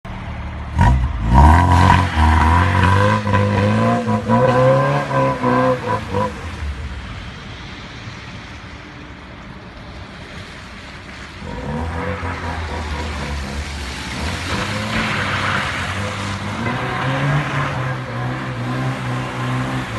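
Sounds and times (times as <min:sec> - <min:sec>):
car engine revving hard: 0:00.8 - 0:06.3.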